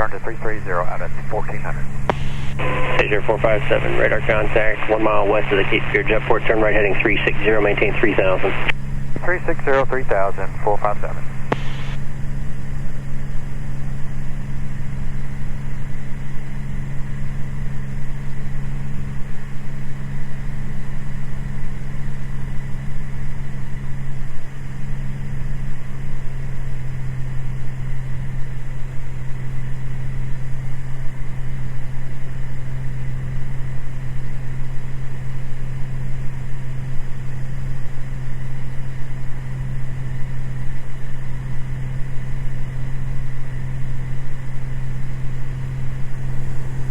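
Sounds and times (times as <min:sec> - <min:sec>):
plane engine droning: 0:00.0 - 0:46.9
faint steady high tone: 0:01.8 - 0:08.6.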